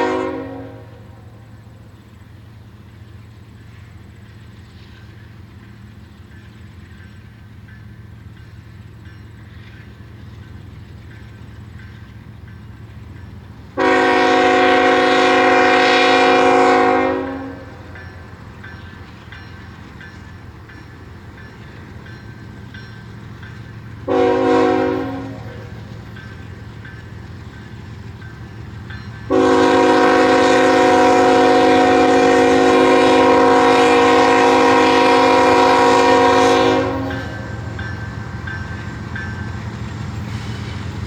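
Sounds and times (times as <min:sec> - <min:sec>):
train horn blasts: 0:00.0 - 0:01.7, 0:13.8 - 0:18.0, 0:24.0 - 0:25.9, 0:29.3 - 0:37.8
low rumble of train: 0:00.0 - 0:41.0.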